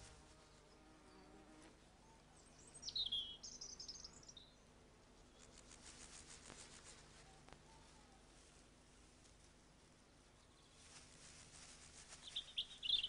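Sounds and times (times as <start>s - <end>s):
songbird chirping and warbling: 0.0s - 5.6s, 7.2s - 8.4s, 12.2s - 13.0s
faint rustling: 5.4s - 12.9s.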